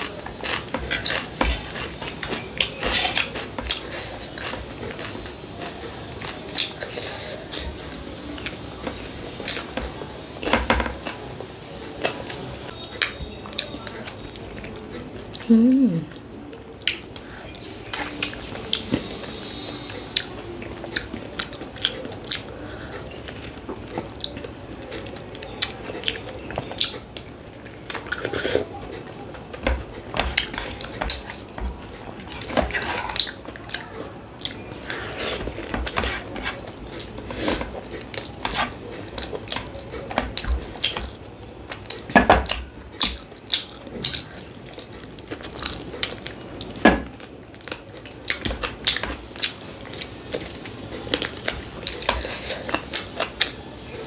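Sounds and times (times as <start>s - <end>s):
chewing and biting: 0.0s - 9.8s, 21.0s - 46.8s.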